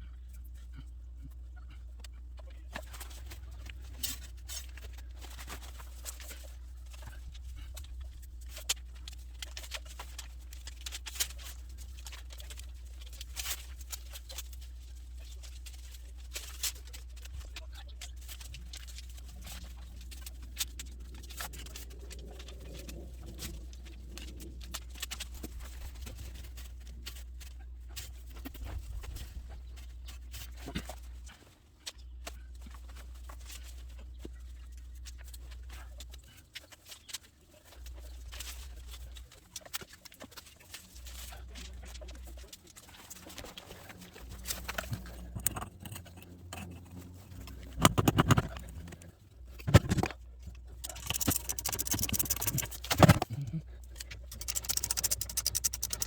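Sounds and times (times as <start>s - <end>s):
steady low hum: 43.8s - 56.0s
small clicks and taps: 50.8s - 53.3s, 54.2s - 56.0s.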